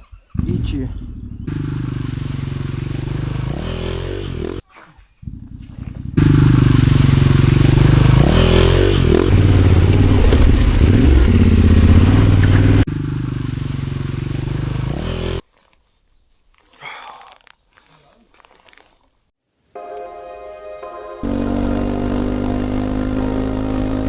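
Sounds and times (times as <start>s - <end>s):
motorcycle engine running: 0.4s - 4.6s, 5.3s - 15.4s, 21.2s - 24.0s.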